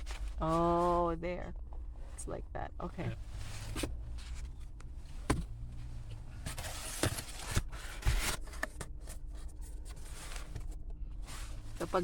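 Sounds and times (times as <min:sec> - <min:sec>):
low hum inside a car: 0:00.0 - 0:12.0
paper and cardboard rustling: 0:06.2 - 0:12.0.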